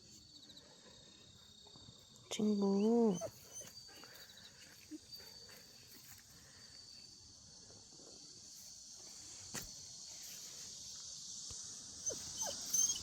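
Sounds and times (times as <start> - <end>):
insects chirring: 0.0 - 13.0
puppy whimpering: 3.1 - 4.0, 12.0 - 13.0.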